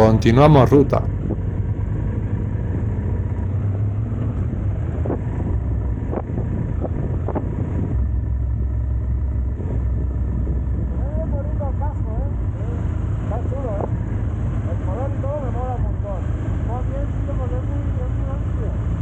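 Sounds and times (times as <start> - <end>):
wind noise on microphone: 4.9 - 8.7.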